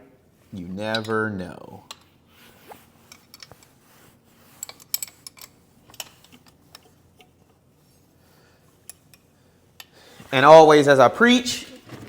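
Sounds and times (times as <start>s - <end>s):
hand tools clicking and tapping: 4.6s - 7.4s.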